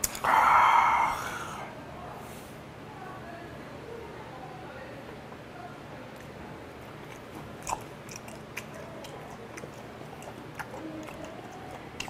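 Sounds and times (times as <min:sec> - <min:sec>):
wet mouth clicks and smacks: 0:00.0 - 0:00.3, 0:07.0 - 0:12.0
chewing raw fish: 0:06.2 - 0:12.0.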